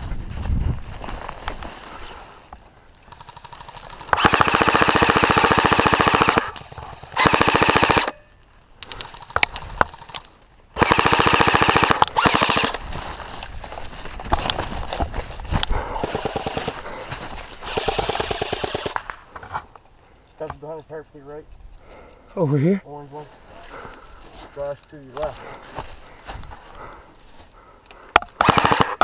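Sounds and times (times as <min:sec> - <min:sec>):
airsoft rifle firing bursts: 0:03.1 - 0:08.1, 0:10.8 - 0:12.8, 0:16.1 - 0:16.8, 0:17.6 - 0:19.1, 0:28.2 - 0:29.0.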